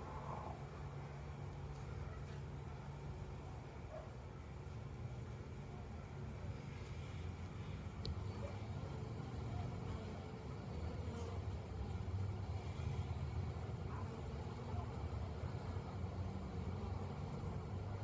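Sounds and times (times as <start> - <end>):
honey bees buzzing: 4.6 - 18.0.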